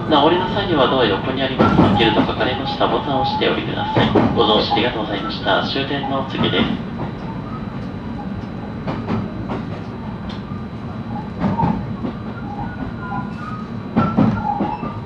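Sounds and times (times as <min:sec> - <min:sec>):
train rumble from inside: 0:00.0 - 0:15.0
wheels clacking over rail joints: 0:00.7 - 0:05.3.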